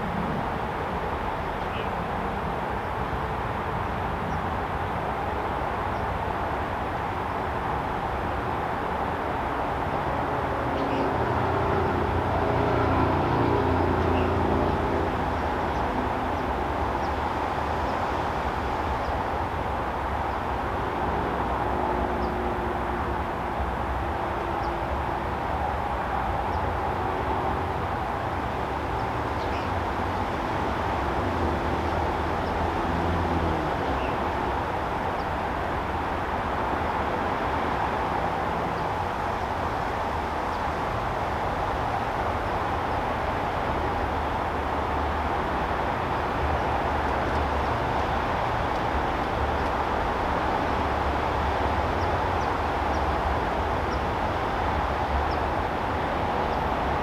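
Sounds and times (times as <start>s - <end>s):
constant rumble and hiss: 13.8s - 57.0s.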